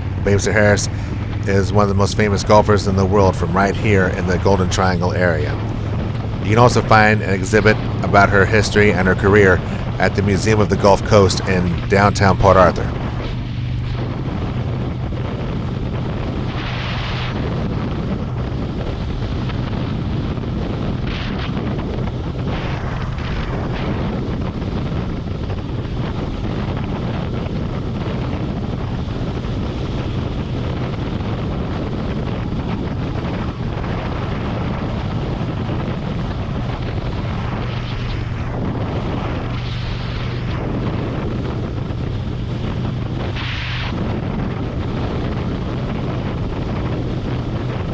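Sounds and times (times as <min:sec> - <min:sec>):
motorcycle engine cruising: 0:00.0 - 0:14.7
wind noise on microphone: 0:00.0 - 0:47.9.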